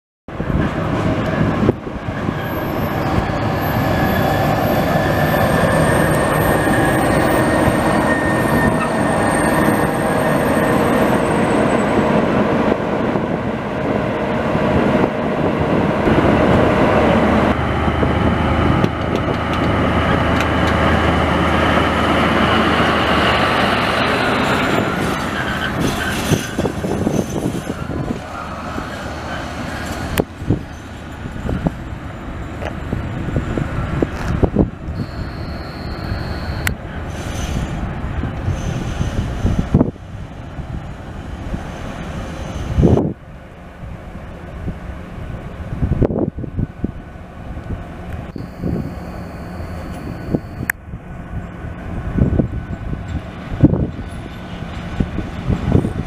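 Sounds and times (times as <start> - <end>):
engine whine: 0.3 - 37.2, 46.0 - 56.0
diesel locomotive engine: 0.3 - 56.0
high squealing tones: 35.0 - 36.7, 48.3 - 50.7.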